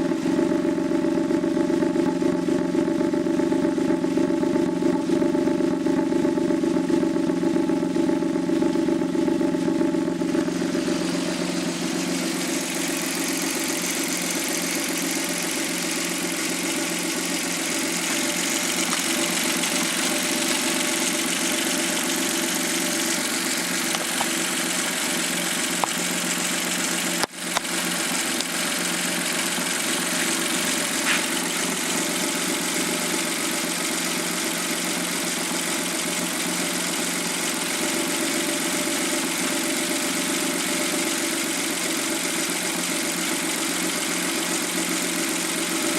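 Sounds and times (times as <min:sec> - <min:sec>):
small car engine idling: 0:00.0 - 0:45.9.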